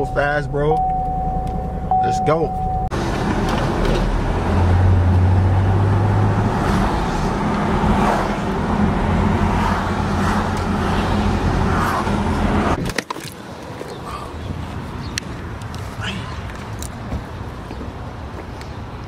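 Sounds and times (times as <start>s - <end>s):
low hum: 0.5s - 2.9s.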